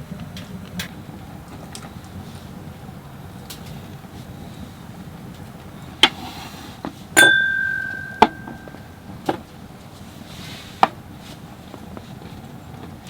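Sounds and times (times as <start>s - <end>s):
ringing metallic clang: 7.2s - 9.0s
knocks: 7.3s - 8.8s.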